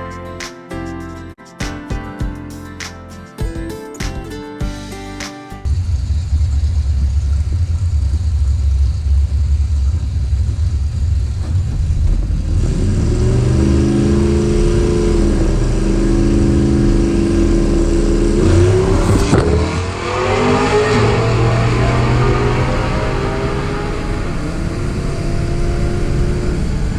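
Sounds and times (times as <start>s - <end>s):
car engine accelerating: 5.7s - 26.9s.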